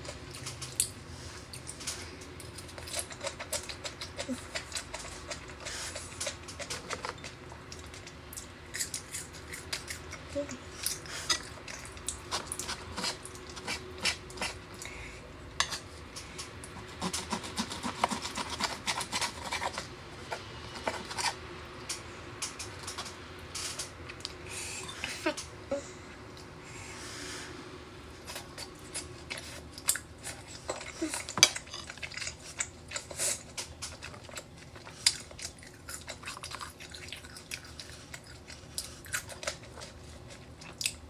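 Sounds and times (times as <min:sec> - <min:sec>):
close-up chewing: 0:00.0 - 0:15.0, 0:16.0 - 0:23.2, 0:28.2 - 0:41.0
knife and fork cutting on wood: 0:16.8 - 0:19.9.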